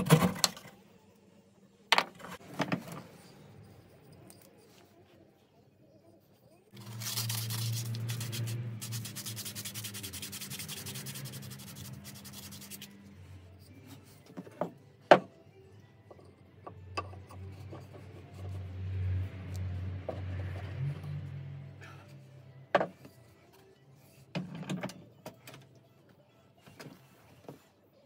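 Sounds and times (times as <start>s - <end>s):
hand sanding strokes: 6.8s - 13.0s.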